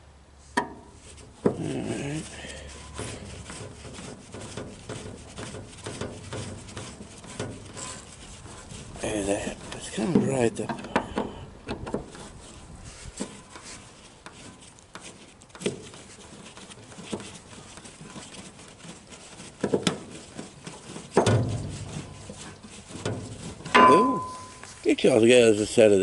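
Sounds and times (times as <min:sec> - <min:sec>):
hand tools clicking and knocking: 0:09.0 - 0:12.2, 0:19.4 - 0:24.8.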